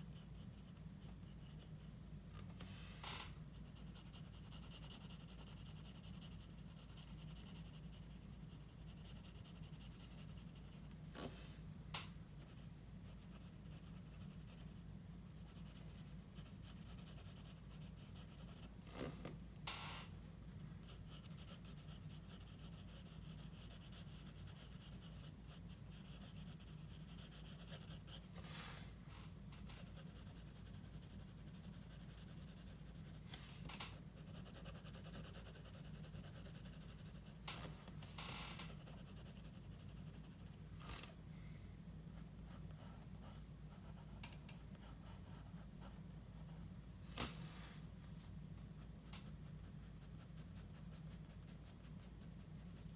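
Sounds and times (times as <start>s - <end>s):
pencil scratching on paper: 0.0s - 1.9s, 3.5s - 10.9s, 12.3s - 18.8s, 20.8s - 28.7s, 29.6s - 37.4s, 38.6s - 40.6s, 42.1s - 46.7s, 48.8s - 52.9s
steady low hum: 0.0s - 52.9s.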